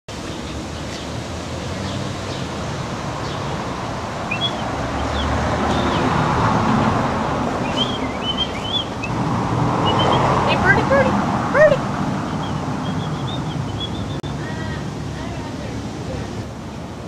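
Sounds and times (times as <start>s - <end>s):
small birds chirping: 0.1s - 6.9s, 7.6s - 11.0s, 12.1s - 14.4s
wind rumble: 0.6s - 17.0s.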